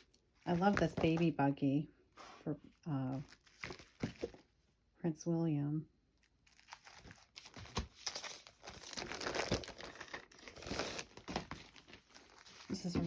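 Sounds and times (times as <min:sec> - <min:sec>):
paper rustling and crinkling: 0:00.0 - 0:01.3, 0:03.1 - 0:04.5, 0:06.2 - 0:13.0.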